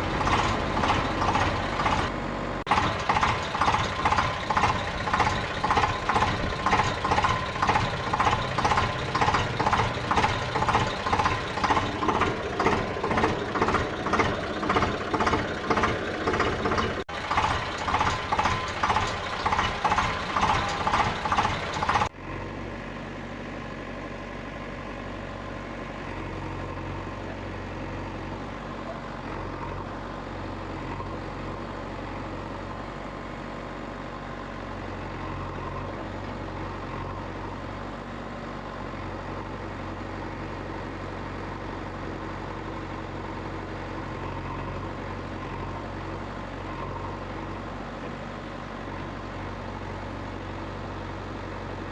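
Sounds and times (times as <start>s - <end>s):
steady motor-like drone: 0.0s - 5.2s.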